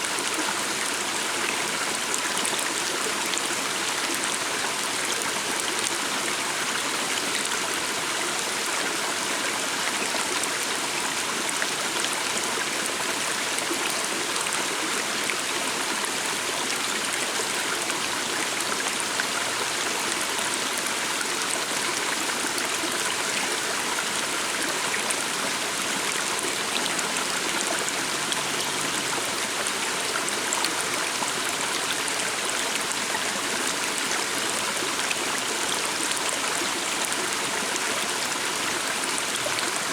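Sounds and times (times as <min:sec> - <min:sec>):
stream running over stones: 0:00.0 - 0:39.9.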